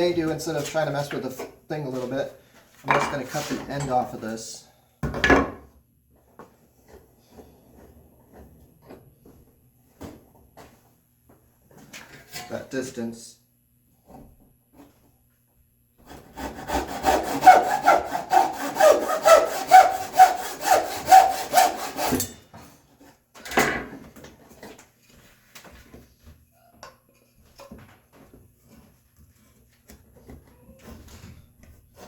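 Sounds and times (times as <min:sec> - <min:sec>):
hand saw cutting wood: 0:16.1 - 0:22.4.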